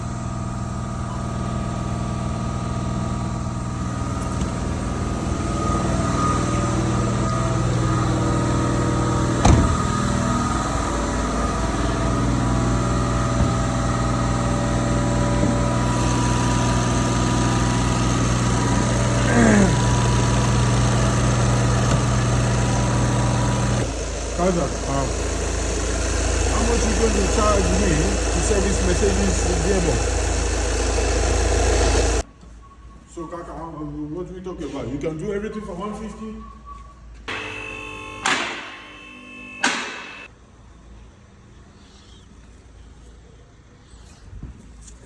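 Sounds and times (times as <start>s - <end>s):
car engine idling: 0.0s - 32.3s.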